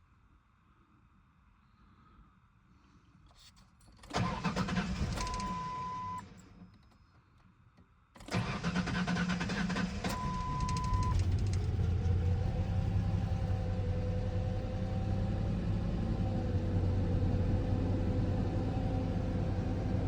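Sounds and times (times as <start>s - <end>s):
engine starter cranking: 4.0s - 5.6s, 8.2s - 12.2s
car engine running: 9.2s - 20.0s.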